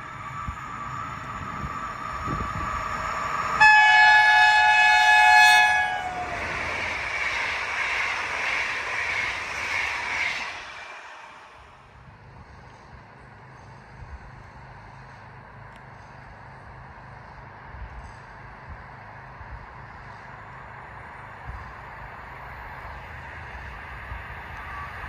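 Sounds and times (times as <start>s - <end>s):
train running past: 0.0s - 25.0s
train horn: 3.5s - 6.5s.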